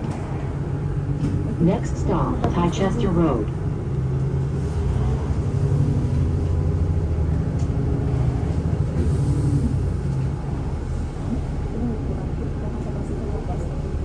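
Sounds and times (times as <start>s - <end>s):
bus engine drone: 0.0s - 14.0s
road rumble: 0.0s - 14.0s.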